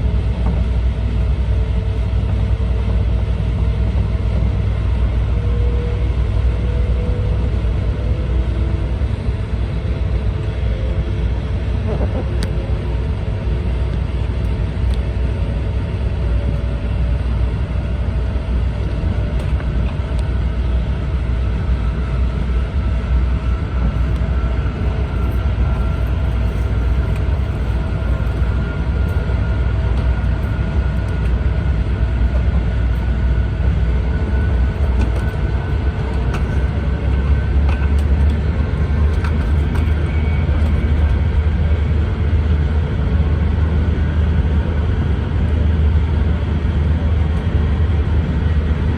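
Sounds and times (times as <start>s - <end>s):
train rumble from inside: 0.0s - 48.9s.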